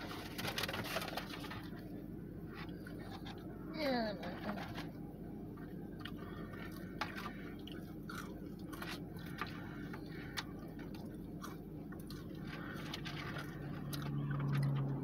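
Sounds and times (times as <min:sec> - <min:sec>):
steady low hum: 0:00.0 - 0:15.0
person chewing food: 0:05.4 - 0:15.0.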